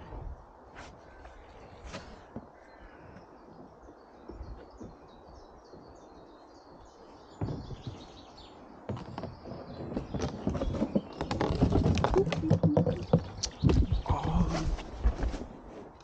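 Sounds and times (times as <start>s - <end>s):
small birds chirping: 1.0s - 14.9s
bumps and knocks: 8.9s - 14.4s.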